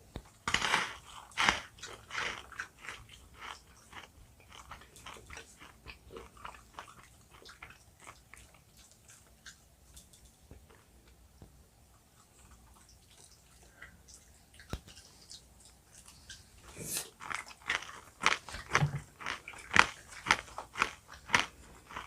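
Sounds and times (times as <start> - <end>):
biting jelly candy: 0.4 - 8.5.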